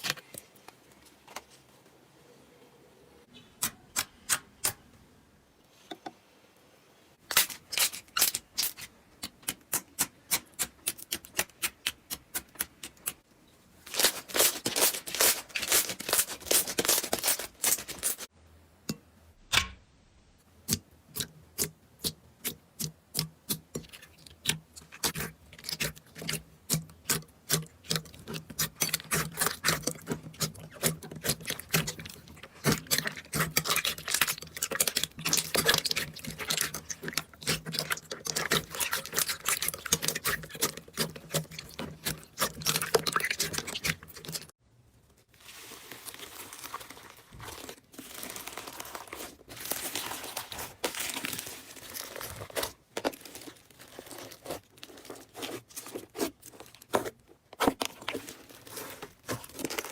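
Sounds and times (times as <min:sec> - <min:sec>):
slime crackling and popping: 0:27.0 - 0:44.5.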